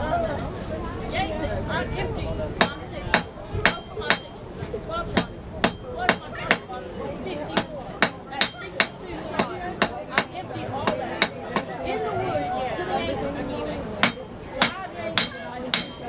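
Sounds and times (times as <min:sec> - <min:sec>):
hammer striking steel on anvil: 0:02.6 - 0:04.4, 0:05.1 - 0:06.8, 0:07.5 - 0:11.9, 0:14.0 - 0:16.0.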